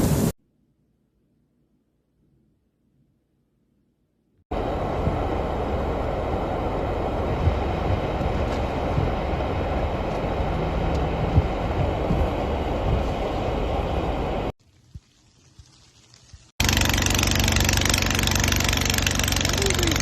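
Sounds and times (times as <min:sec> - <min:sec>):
loud rumbling noise: 0:04.5 - 0:14.5.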